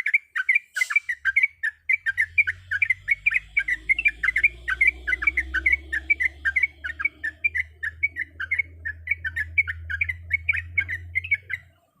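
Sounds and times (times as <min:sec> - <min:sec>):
bird singing fast chatter: 0:00.0 - 0:12.0.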